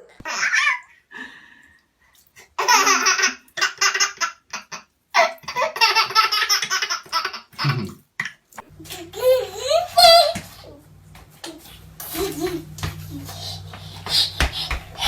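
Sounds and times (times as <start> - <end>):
child laughing: 8.8 - 10.8, 11.4 - 15.0.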